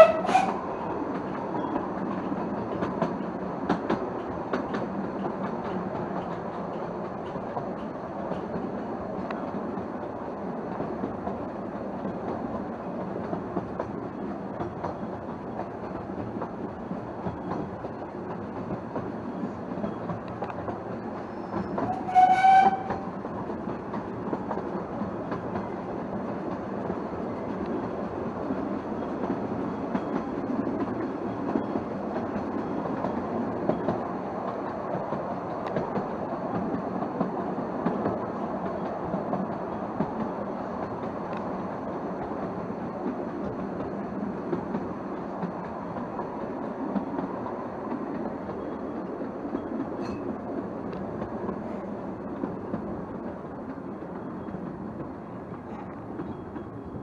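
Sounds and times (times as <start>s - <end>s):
locomotive whistle: 0.0s - 0.6s, 21.8s - 23.0s
train wheels rumbling and rattling: 0.0s - 57.0s.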